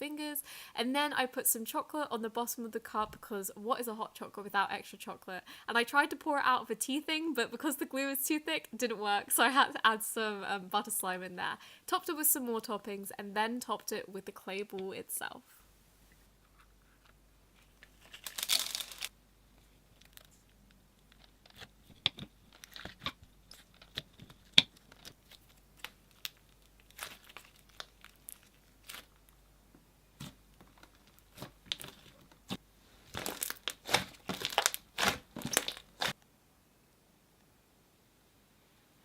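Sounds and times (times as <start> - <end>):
slime squished by hand crackling: 33.2 - 36.2.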